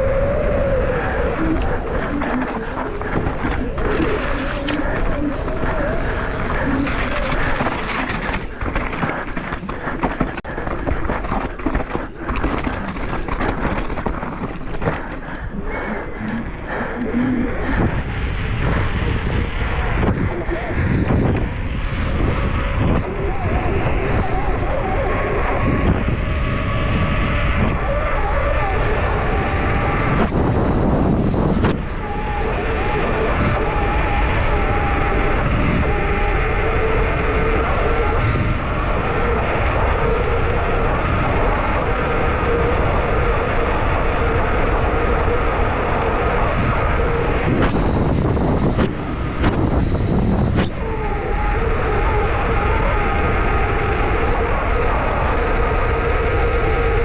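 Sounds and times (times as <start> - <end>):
tyres rolling over rough ground: 0.0 - 21.4, 28.1 - 55.7
wind rushing over microphone: 0.0 - 57.0
bike knocking and rattling: 1.4 - 15.5.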